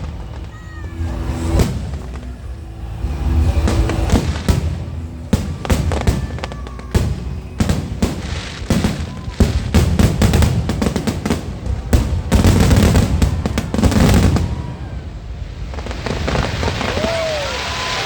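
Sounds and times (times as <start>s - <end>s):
fireworks booming and crackling: 0.0s - 18.0s.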